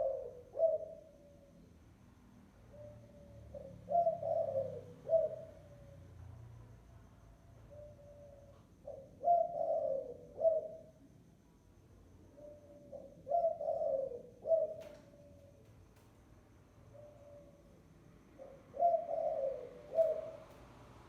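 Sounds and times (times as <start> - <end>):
dove cooing: 0.0 - 1.5, 2.7 - 6.1, 7.7 - 11.0, 12.3 - 15.6, 18.4 - 20.6
faint click: 14.8 - 16.2.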